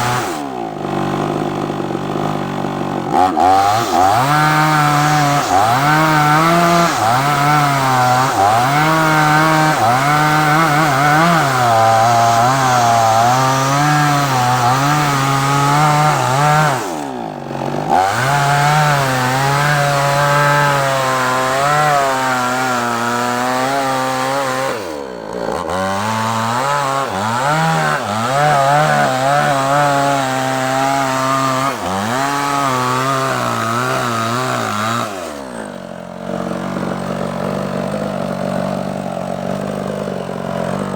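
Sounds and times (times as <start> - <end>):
chainsaw cutting log: 0.0 - 40.9.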